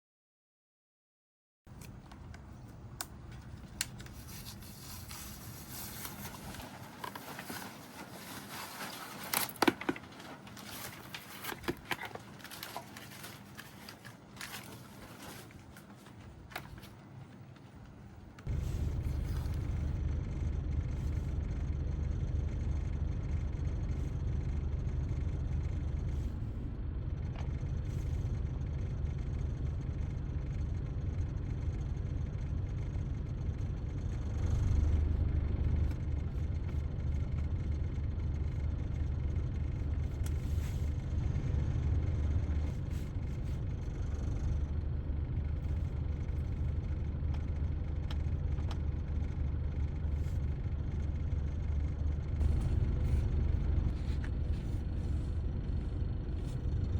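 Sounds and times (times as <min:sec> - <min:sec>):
motorcycle engine rumbling: 0:18.4 - 0:21.3, 0:52.4 - 0:56.7.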